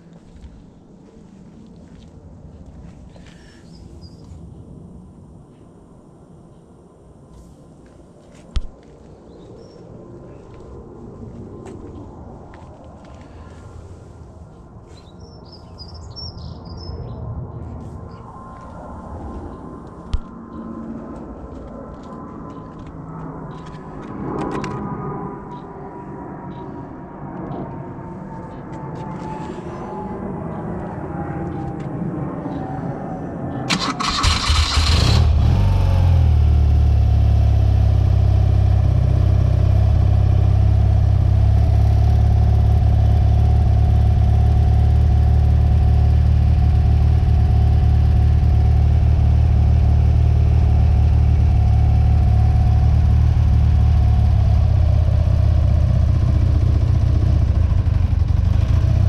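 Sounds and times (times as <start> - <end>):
motorcycle engine idling: 33.7 - 59.0.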